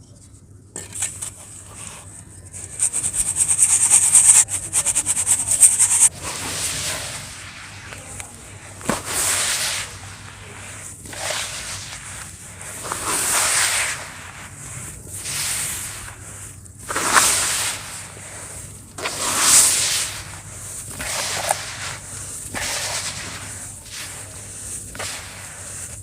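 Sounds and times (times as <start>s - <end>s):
sand crumbling in water hiss: 6.1s - 26.0s.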